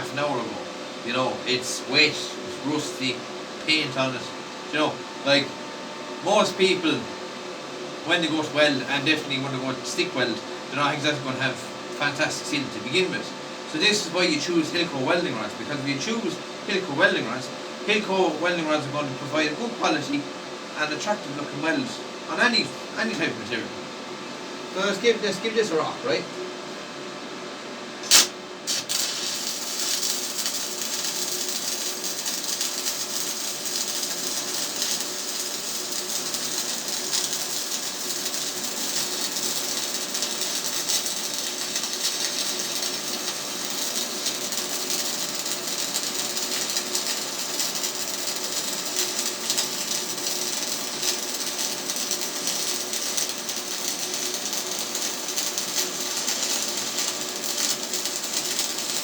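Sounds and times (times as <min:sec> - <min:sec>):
welding arc crackling sizzle: 0:00.0 - 0:07.2, 0:08.0 - 0:20.2, 0:28.0 - 0:59.0
welding arc striking crack: 0:28.0 - 0:59.0.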